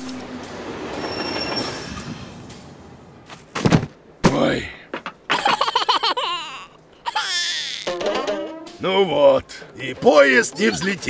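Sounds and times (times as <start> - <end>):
cartoon train noise: 5.3 - 11.0
wavering cartoon creature vocals: 10.5 - 11.0.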